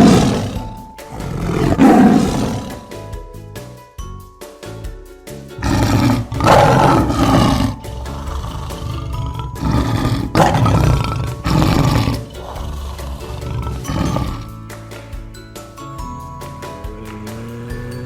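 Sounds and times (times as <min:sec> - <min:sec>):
big cat roaring: 0:00.0 - 0:03.0, 0:05.6 - 0:14.5, 0:16.9 - 0:18.0
background music: 0:00.0 - 0:18.0.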